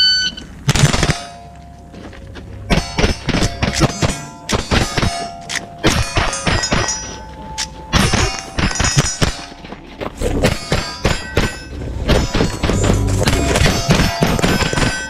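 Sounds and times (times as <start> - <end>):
steel targets ringing: 0.0 - 15.0
rifle shots: 0.7 - 1.4.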